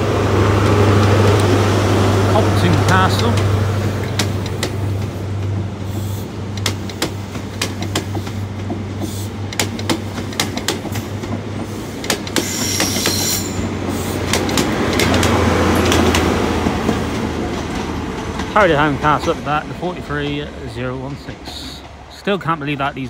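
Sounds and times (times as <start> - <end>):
diesel locomotive hum: 0.0 - 23.0
wheels clicking over rail joints: 0.0 - 23.0
high wheel squeal: 12.4 - 14.1.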